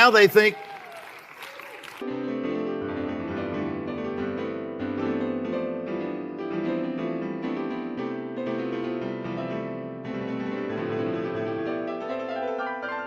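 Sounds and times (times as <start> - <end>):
piano music: 2.0 - 13.0.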